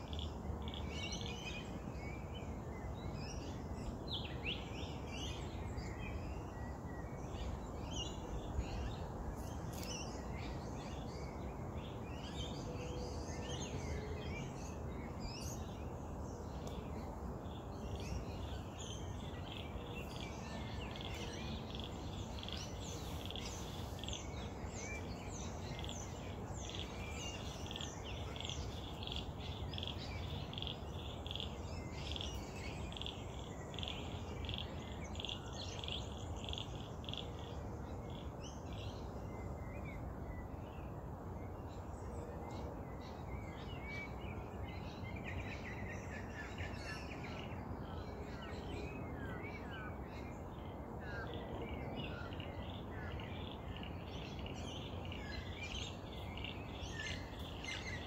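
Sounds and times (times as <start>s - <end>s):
birds chirping: 3.3s - 40.8s.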